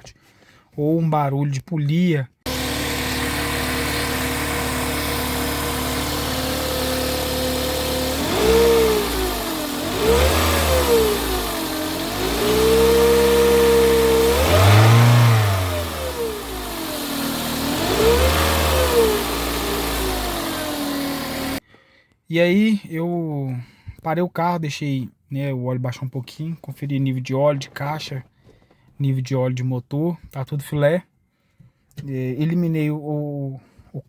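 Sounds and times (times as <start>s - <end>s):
alternator belt noise: 2.5s - 21.6s
car engine idling and revving: 2.5s - 21.6s.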